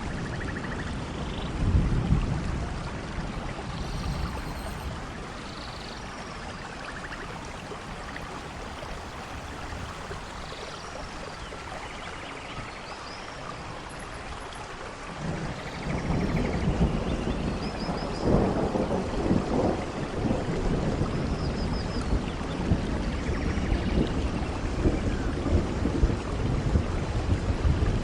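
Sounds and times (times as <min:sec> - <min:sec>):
rain and running water: 0:00.0 - 0:28.0
faint high chirps: 0:03.3 - 0:20.3
low rumble of thunder: 0:15.2 - 0:28.0.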